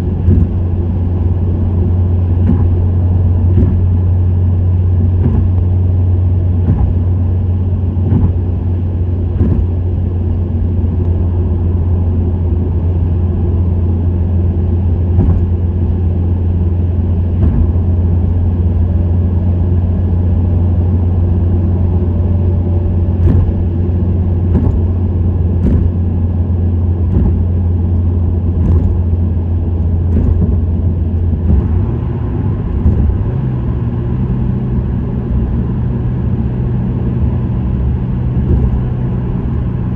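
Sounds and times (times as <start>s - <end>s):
car exhaust drone: 0.0s - 39.9s
short knocks: 0.2s - 0.7s, 2.4s - 2.9s, 3.5s - 4.0s, 5.1s - 5.7s, 6.6s - 7.2s, 8.0s - 8.5s, 9.3s - 9.8s, 15.1s - 15.7s, 17.4s - 18.0s, 23.2s - 23.8s, 24.4s - 25.0s, 25.6s - 26.1s, 27.0s - 27.7s, 28.6s - 29.1s, 30.1s - 30.8s, 32.7s - 33.4s, 38.4s - 39.5s.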